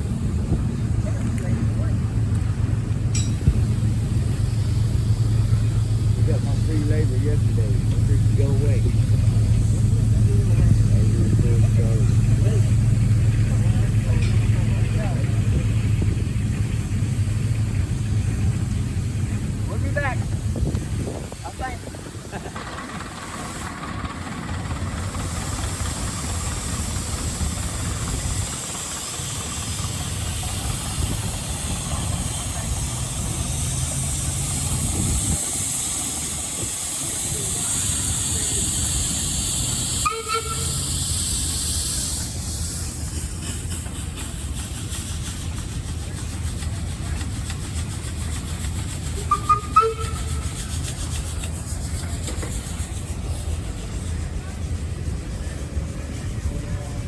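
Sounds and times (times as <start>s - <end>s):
engine running with low pulsing: 0.0s - 57.0s
machinery rumbling: 0.0s - 57.0s
steady hiss: 15.7s - 57.0s.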